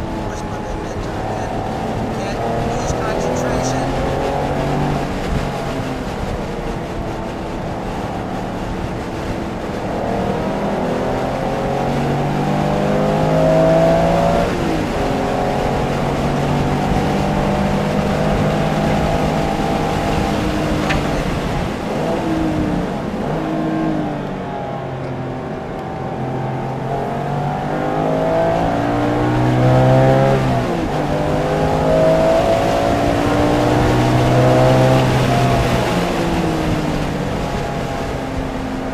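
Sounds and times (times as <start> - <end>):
car engine accelerating hard: 0.0 - 38.9.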